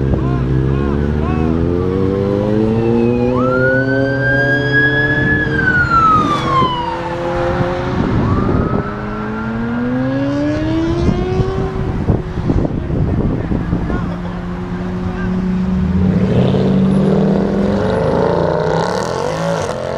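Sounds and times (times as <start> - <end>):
car engines accelerating hard: 0.0 - 19.9.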